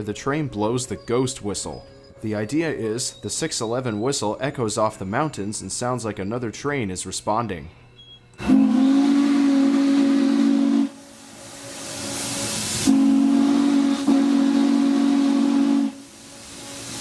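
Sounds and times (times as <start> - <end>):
steam hiss: 8.4 - 17.0
steam whistle blasts: 8.4 - 17.0.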